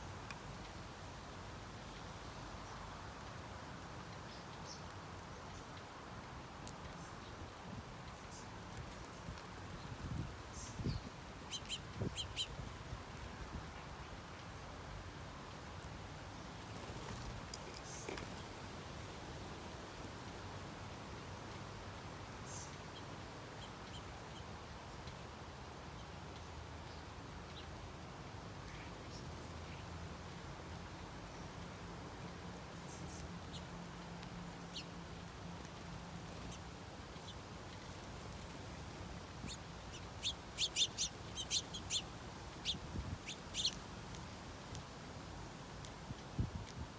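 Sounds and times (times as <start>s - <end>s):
songbirds chirping: 0.0s - 46.0s
bird chirping: 9.7s - 12.7s, 37.2s - 43.8s.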